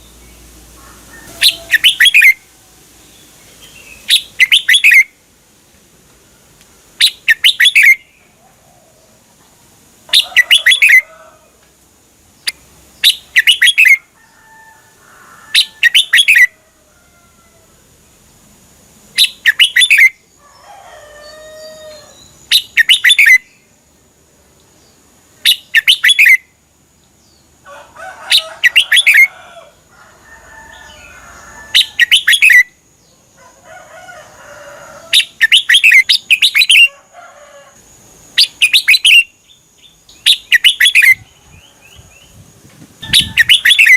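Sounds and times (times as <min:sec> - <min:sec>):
bird chattering calls: 0:01.2 - 0:02.4, 0:03.9 - 0:05.2, 0:07.0 - 0:08.2, 0:10.1 - 0:11.1, 0:12.4 - 0:14.0, 0:15.5 - 0:16.5, 0:19.2 - 0:20.2, 0:22.5 - 0:23.5, 0:25.5 - 0:26.4, 0:28.3 - 0:29.3, 0:31.7 - 0:32.7, 0:35.1 - 0:36.9, 0:38.4 - 0:39.3, 0:40.2 - 0:41.2, 0:43.0 - 0:43.9
bird singing warbled phrases: 0:01.3 - 0:02.4, 0:03.1 - 0:05.2, 0:07.0 - 0:08.4, 0:10.1 - 0:11.1, 0:12.3 - 0:14.0, 0:15.5 - 0:16.5, 0:19.1 - 0:20.3, 0:21.6 - 0:23.7, 0:24.9 - 0:26.5, 0:28.3 - 0:29.3, 0:30.8 - 0:33.2, 0:35.1 - 0:36.9, 0:38.4 - 0:42.4, 0:43.0 - 0:43.9.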